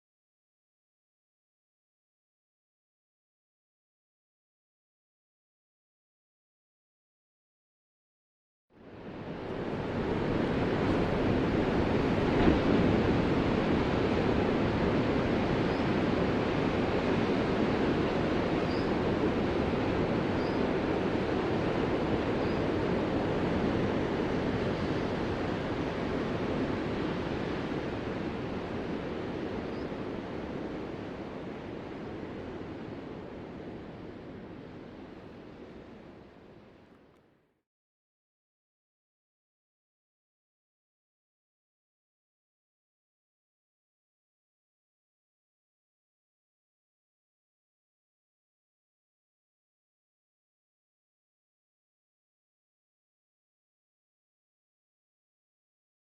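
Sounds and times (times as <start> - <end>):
ocean waves breaking: 8.9 - 36.2.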